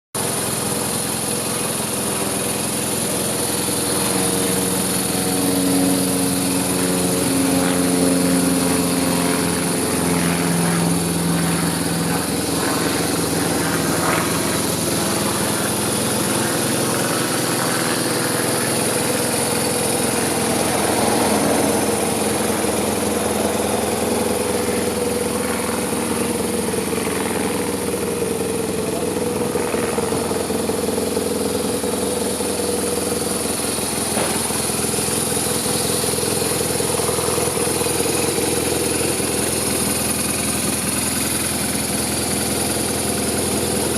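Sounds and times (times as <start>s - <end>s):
motorcycle engine idling: 0.2s - 43.9s.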